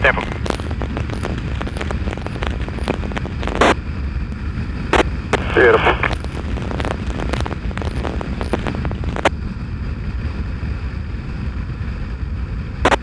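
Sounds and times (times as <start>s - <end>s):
sharp clicks and crackles: 0.0s - 3.8s, 4.9s - 9.4s, 12.8s - 13.0s
wind rumbling on microphone: 0.0s - 13.0s.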